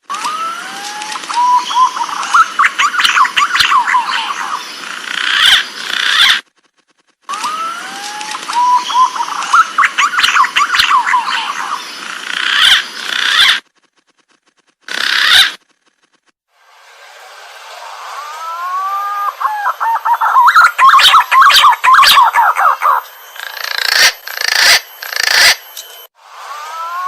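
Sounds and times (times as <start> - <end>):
recorded pigeon calls: 8.5 - 13.6, 19.2 - 25.6.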